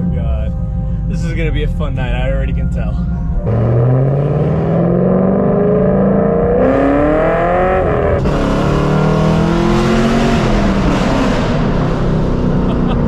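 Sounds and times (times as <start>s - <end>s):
car engine accelerating hard: 3.4s - 13.0s.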